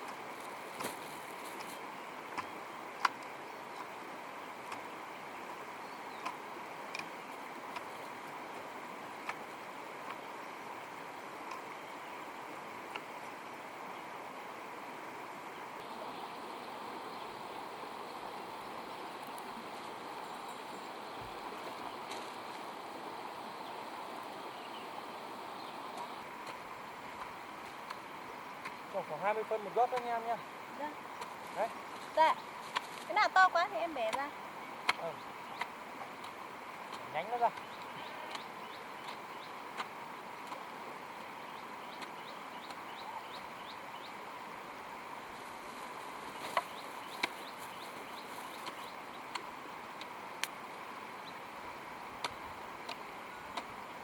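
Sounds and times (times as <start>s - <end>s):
birds chirping: 0.0s - 54.0s
running water rushing: 0.0s - 54.0s
steady outdoor hiss: 0.0s - 54.0s.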